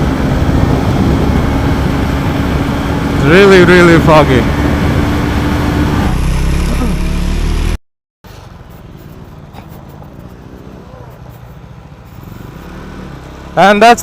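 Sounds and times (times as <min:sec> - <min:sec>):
wind rumble: 0:00.0 - 0:06.6
low engine and road rumble: 0:00.0 - 0:14.0
motorcycle engine riding: 0:00.0 - 0:14.0.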